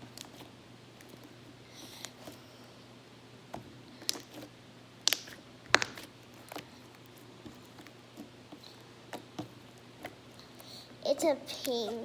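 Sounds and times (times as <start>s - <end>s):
slime squelching and clicking: 4.0s - 10.7s.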